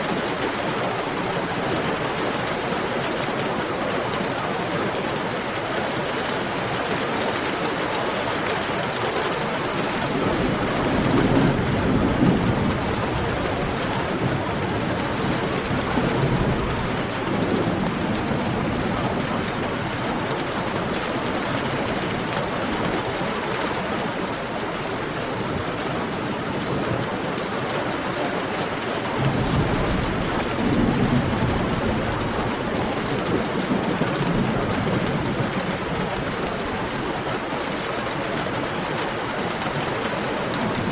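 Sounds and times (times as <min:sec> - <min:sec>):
heavy rain: 0:00.0 - 0:40.9
low thunder rumbles: 0:09.4 - 0:23.4, 0:29.0 - 0:37.8.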